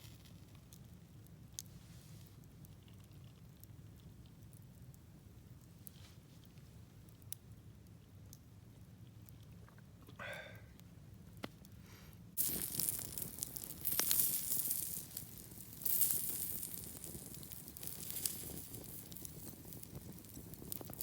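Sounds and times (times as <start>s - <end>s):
burning wood crackling: 0.0s - 10.0s, 10.8s - 21.0s
sausages sizzling: 12.4s - 21.0s.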